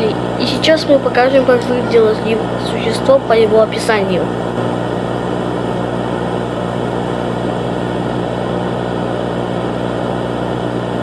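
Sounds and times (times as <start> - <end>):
steady drone with hiss: 0.0 - 6.1.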